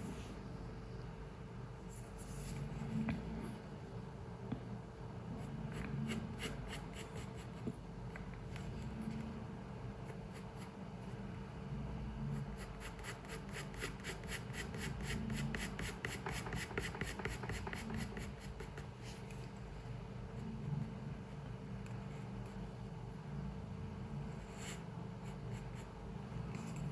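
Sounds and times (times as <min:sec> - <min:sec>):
low room hum: 0:00.0 - 0:26.9
pencil scratching on paper: 0:05.4 - 0:07.6, 0:12.3 - 0:18.9, 0:24.3 - 0:26.9.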